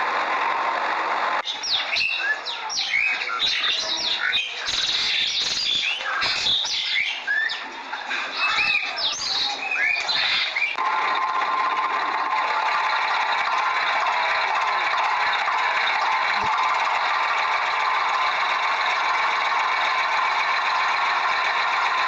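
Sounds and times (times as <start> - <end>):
engine-like hum: 0.0 - 4.2, 10.7 - 22.0
birds chirping: 1.4 - 10.8.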